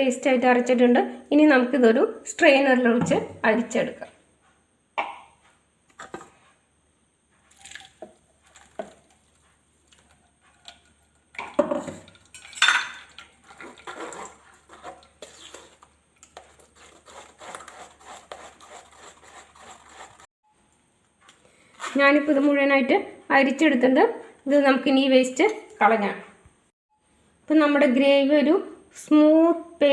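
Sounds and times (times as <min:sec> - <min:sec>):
utensil scraping a strainer: 0:13.3 - 0:20.3.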